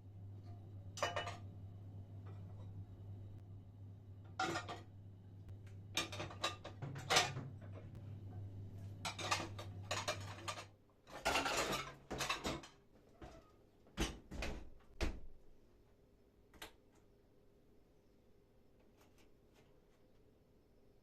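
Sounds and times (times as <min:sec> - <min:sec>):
low hum: 0:00.0 - 0:10.2
dishes and cutlery clattering: 0:01.0 - 0:01.5, 0:04.3 - 0:04.9, 0:06.0 - 0:08.0, 0:09.0 - 0:13.4.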